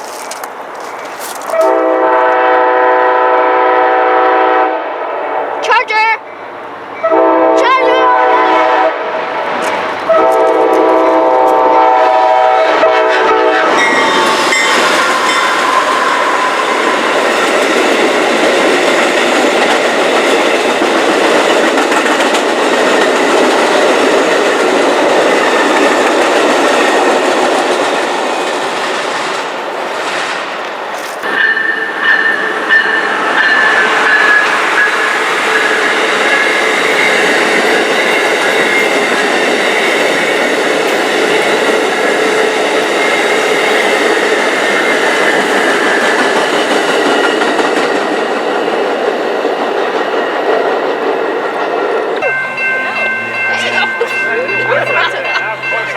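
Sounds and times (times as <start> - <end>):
train wheel and rail noise: 0.0 - 55.9
locomotive horn blasts: 1.5 - 5.4, 7.0 - 9.0, 10.1 - 13.9, 52.2 - 55.9.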